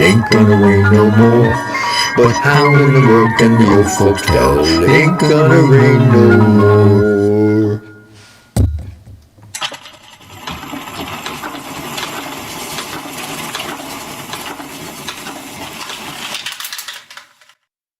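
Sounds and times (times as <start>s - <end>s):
piano mechanism thump: 8.6s - 9.6s
piano roll rewinding rattle: 9.6s - 17.6s.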